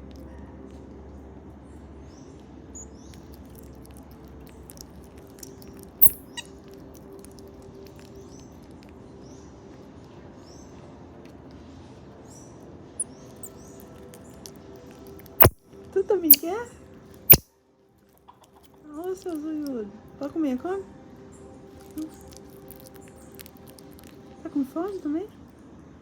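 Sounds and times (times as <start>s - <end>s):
marmosets chirping: 4.7s - 6.5s, 15.3s - 15.6s, 16.3s - 16.6s.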